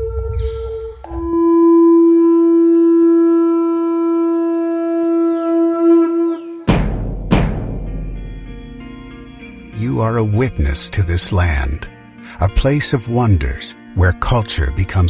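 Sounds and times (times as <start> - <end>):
horn blowing long note: 0.0 - 6.6
heavy percussive hits: 6.7 - 9.1.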